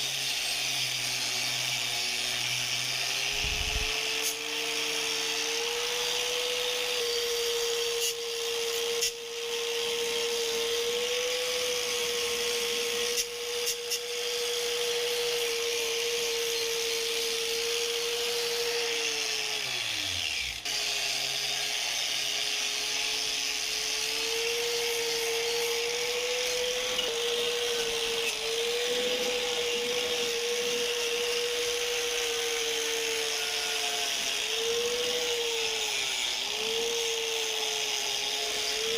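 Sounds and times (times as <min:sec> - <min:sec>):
power tool motor whining: 0:00.0 - 0:38.9.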